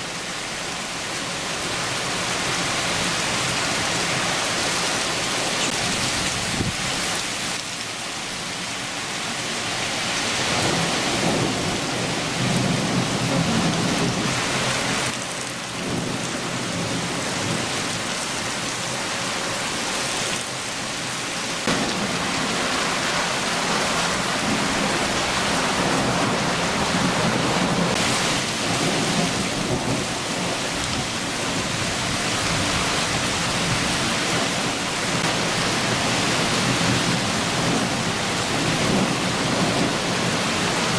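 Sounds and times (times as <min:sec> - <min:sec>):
heavy rain falling: 0:00.0 - 0:40.9
low thunder rumbling: 0:10.5 - 0:15.1, 0:21.6 - 0:40.9.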